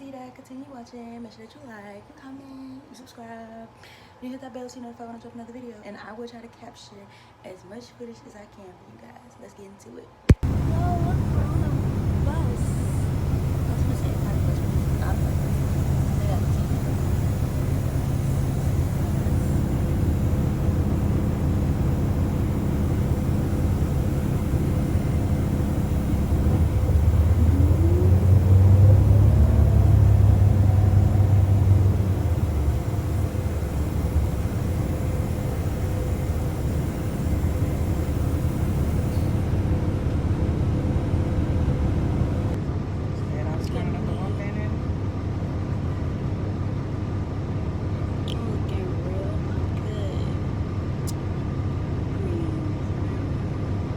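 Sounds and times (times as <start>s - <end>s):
rising whine: 10.3s - 42.6s
bus engine and road rumble: 10.3s - 53.9s.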